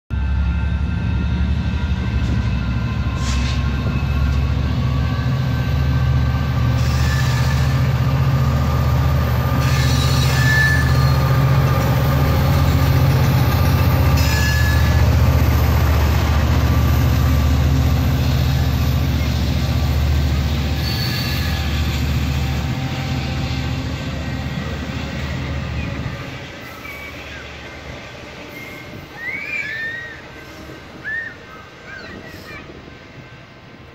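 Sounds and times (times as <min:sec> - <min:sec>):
diesel locomotive rumble: 0:00.1 - 0:33.9
high thin wheel squeals: 0:06.7 - 0:08.2, 0:09.5 - 0:15.6, 0:20.7 - 0:22.2, 0:25.2 - 0:32.7.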